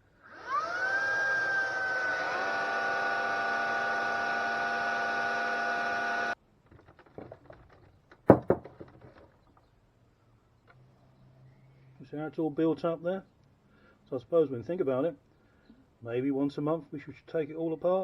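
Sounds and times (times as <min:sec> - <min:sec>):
vacuum brush motor whining: 0:00.2 - 0:06.4.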